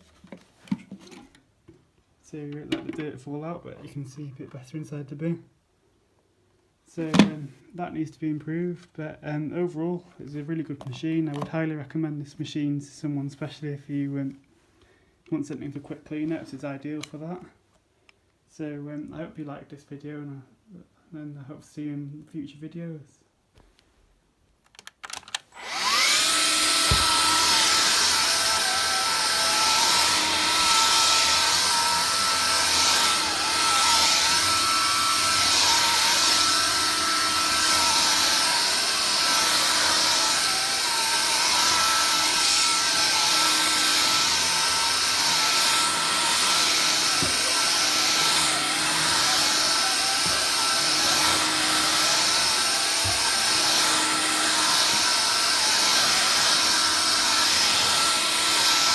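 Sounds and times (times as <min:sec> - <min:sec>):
stick vacuum motor whining: 0:25.2 - 0:58.9.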